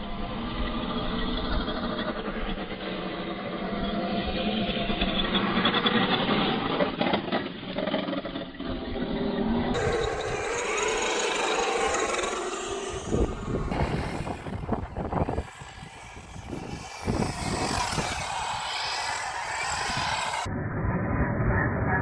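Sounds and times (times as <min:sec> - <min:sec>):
electric motor whining: 0:09.8 - 0:20.5.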